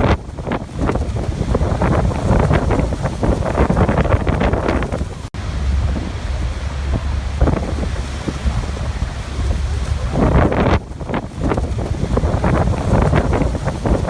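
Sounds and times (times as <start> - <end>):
wind buffeting microphone: 0.0 - 14.0
waterfall rushing: 3.0 - 10.6.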